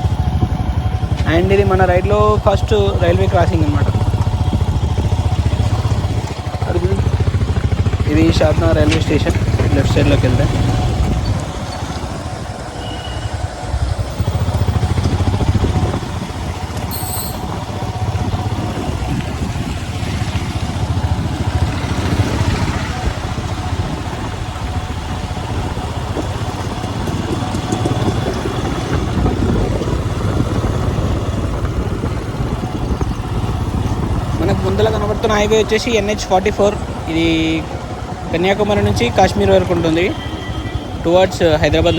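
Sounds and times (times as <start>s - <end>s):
motorcycle engine running: 0.0s - 41.9s
road and wind noise: 0.0s - 41.9s
high-pitched chirp: 16.9s - 17.6s.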